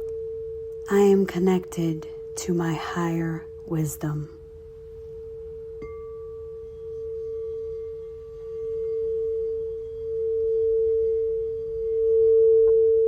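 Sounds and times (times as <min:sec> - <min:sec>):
singing bowl low tone: 0:00.0 - 0:13.0
higher ringing tone from strike: 0:04.5 - 0:13.0.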